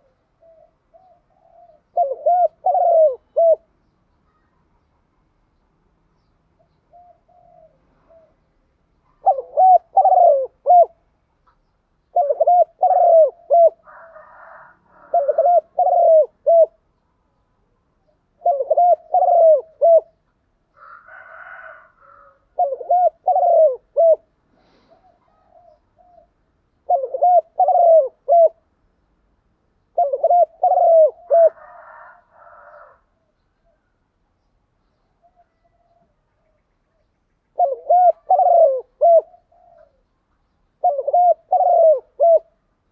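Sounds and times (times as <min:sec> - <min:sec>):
dove cooing: 0:00.0 - 0:03.8, 0:06.6 - 0:08.5, 0:09.1 - 0:11.1, 0:12.1 - 0:16.9, 0:18.0 - 0:28.7, 0:29.9 - 0:33.9, 0:35.2 - 0:40.1, 0:40.8 - 0:42.7.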